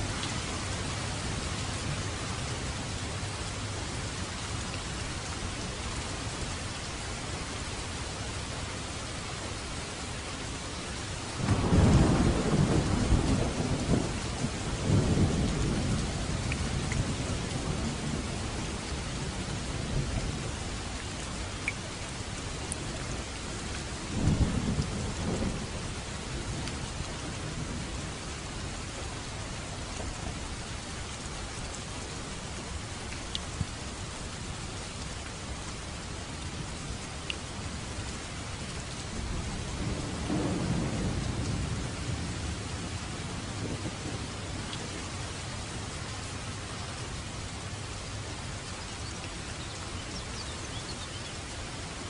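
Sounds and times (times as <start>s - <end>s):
steady rain: 0.0s - 52.0s
thunder rumbling: 11.4s - 20.6s, 24.1s - 28.2s, 38.5s - 45.0s.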